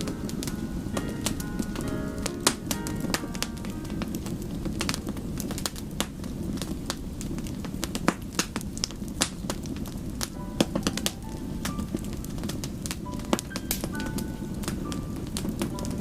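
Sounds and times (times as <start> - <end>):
low rumble of flame: 0.0 - 16.0
wood fire crackling and popping: 0.0 - 16.0.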